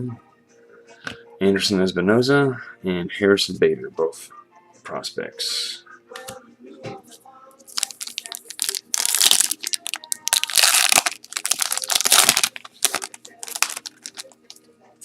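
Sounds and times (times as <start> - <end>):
wrapper crinkling being torn open: 7.7 - 14.5.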